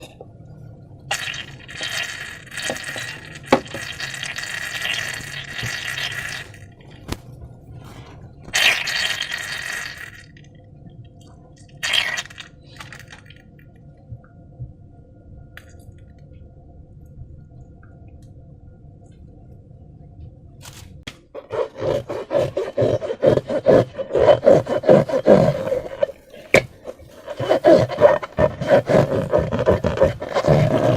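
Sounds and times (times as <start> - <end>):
slime squishing and rubbing: 21.4 - 30.9.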